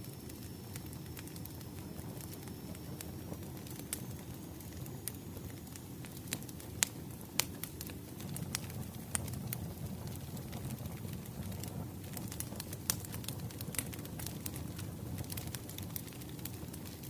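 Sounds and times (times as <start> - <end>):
wood fire crackling: 0.0 - 17.0
sharp pops of burning logs: 5.5 - 17.0.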